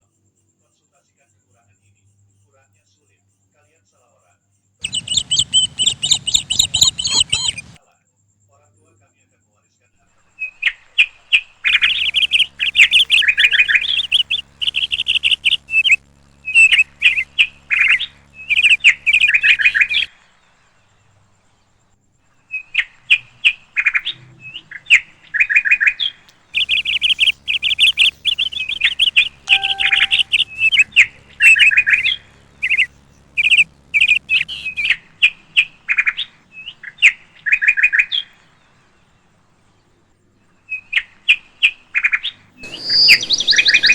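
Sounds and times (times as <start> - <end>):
faint low hum: 0.1 - 43.9
small bird chirping: 4.8 - 7.8, 10.1 - 43.9.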